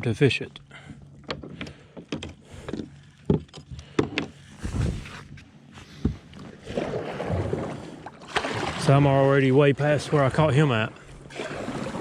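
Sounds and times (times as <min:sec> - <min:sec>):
water swishing: 0:06.3 - 0:12.0.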